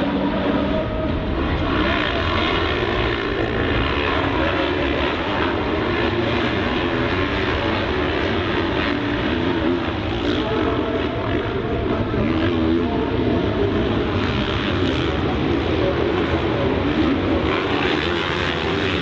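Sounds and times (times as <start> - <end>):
heavy low rumble: 0.0 - 14.2
motocross bike engine running hard: 0.0 - 19.0.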